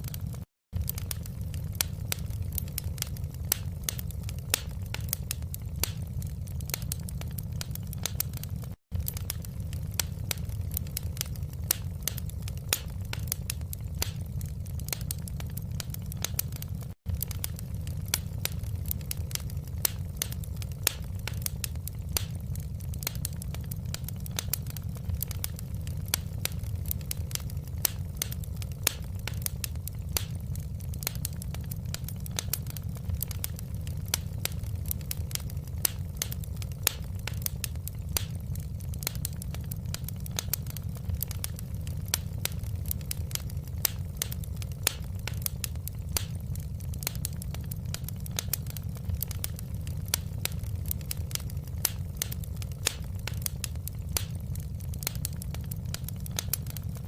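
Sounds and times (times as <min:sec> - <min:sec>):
fireplace fire crackling: 0:00.0 - 0:57.0.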